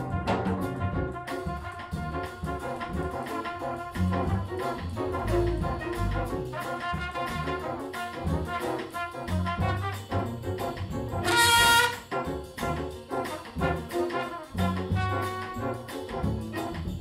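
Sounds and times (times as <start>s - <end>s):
trumpet solo: 0.0s - 16.9s
big band jazz backing: 0.0s - 17.0s
high trumpet note: 11.2s - 12.3s.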